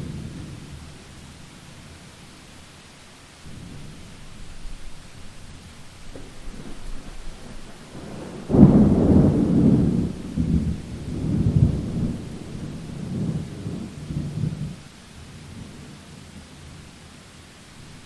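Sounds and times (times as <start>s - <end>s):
steady rain: 0.0s - 18.0s
thunder rumbling: 3.5s - 14.8s.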